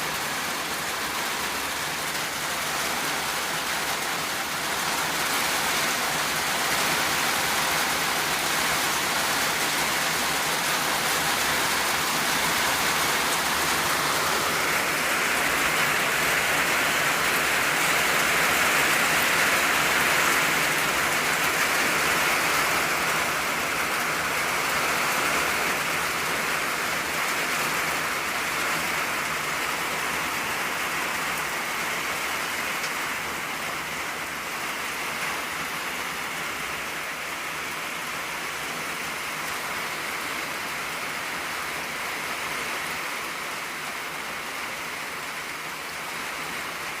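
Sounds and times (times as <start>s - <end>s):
rain on a tin roof: 0.0s - 47.0s.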